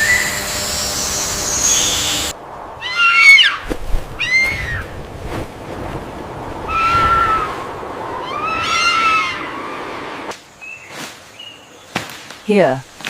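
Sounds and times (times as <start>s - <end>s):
high whistle-like notes: 0.0s - 2.3s
steady rushing background: 0.0s - 10.4s.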